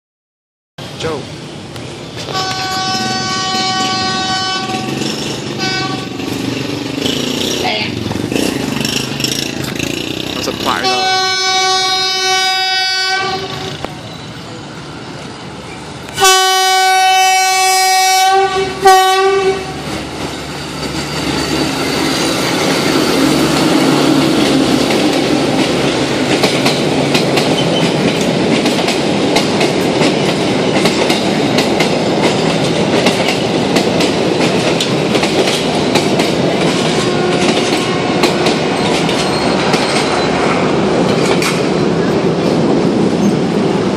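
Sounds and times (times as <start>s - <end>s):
train wheels clattering: 2.2s - 10.8s, 19.7s - 43.8s
locomotive air horn: 2.3s - 5.0s, 5.6s - 6.2s, 10.8s - 13.9s, 16.2s - 19.8s, 37.0s - 38.5s.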